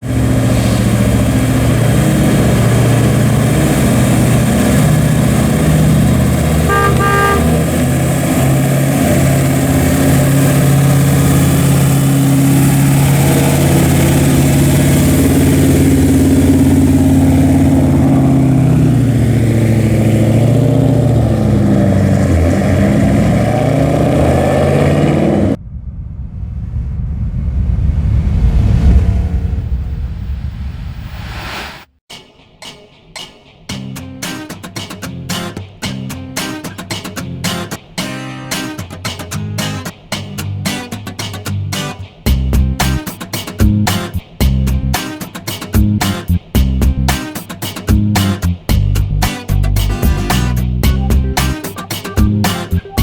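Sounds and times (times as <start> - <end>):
engine rumbling and revving: 0.0 - 25.6, 27.7 - 31.5, 41.5 - 43.0, 43.6 - 45.0, 45.8 - 47.2, 47.9 - 51.6, 52.2 - 53.0
short horn toot: 6.7 - 7.6.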